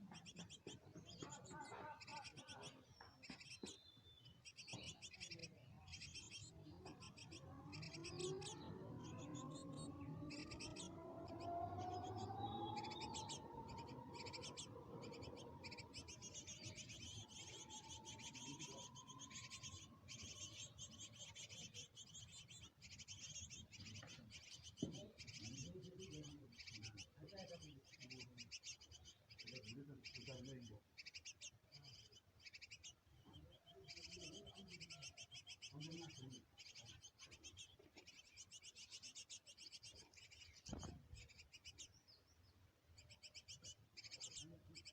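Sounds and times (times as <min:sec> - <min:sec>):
small birds twittering: 0:00.0 - 0:44.9.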